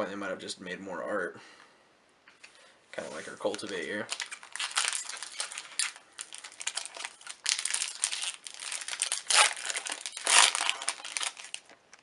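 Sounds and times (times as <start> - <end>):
foil wrapper crinkling: 3.4 - 12.0.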